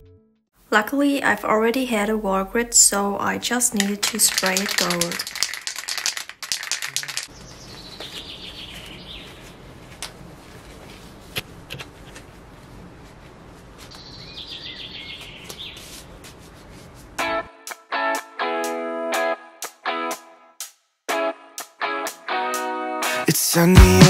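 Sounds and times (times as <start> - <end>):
gloves clicking and rustling: 3.7 - 7.3
bird singing falling notes: 7.0 - 9.4, 13.9 - 15.8
outdoor background noise: 7.0 - 17.2.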